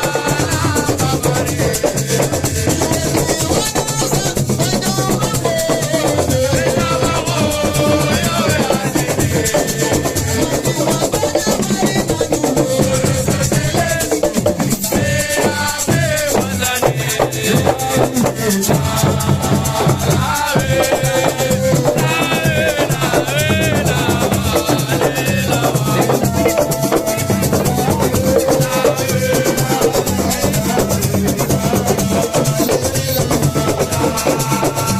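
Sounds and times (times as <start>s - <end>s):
shaker keeping time: 0.0s - 34.9s
steady drum beat: 0.0s - 34.9s.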